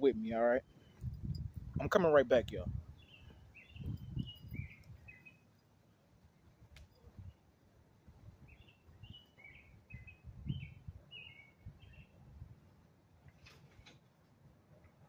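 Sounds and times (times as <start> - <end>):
small bird chirping: 2.9 - 5.6, 8.5 - 12.2.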